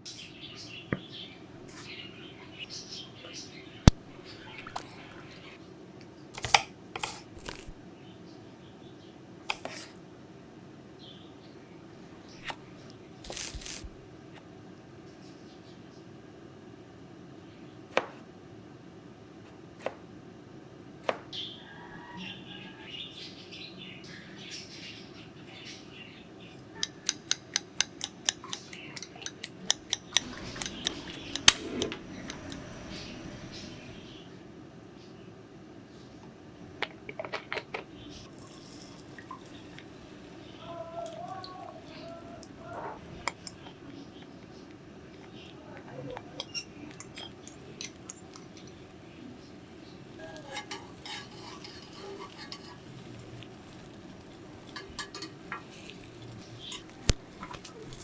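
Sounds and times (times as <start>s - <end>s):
faint handling sounds: 6.4s - 7.8s, 12.2s - 14.0s, 50.2s - 58.0s
objects clicking and scuffing: 6.4s - 7.8s, 13.2s - 14.0s.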